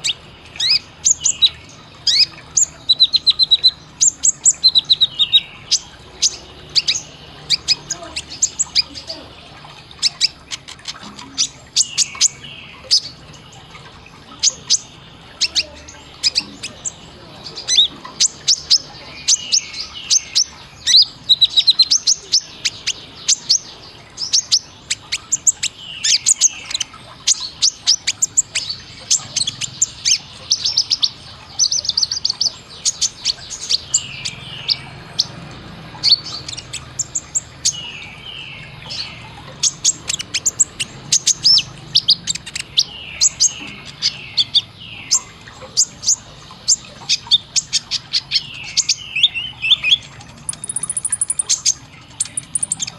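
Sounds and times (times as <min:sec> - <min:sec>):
sunbird singing high sharp chirps: 0:00.0 - 0:09.2, 0:36.0 - 0:52.9.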